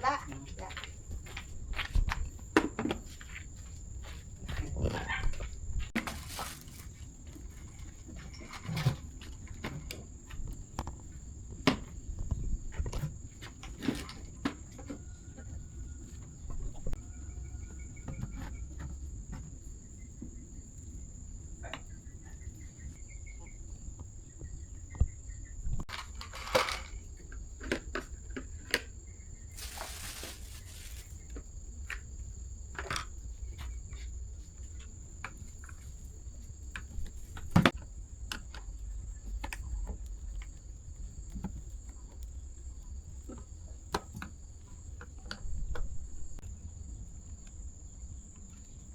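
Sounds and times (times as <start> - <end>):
crickets chirring: 0.0 - 48.9
brief hiss: 29.6 - 31.1.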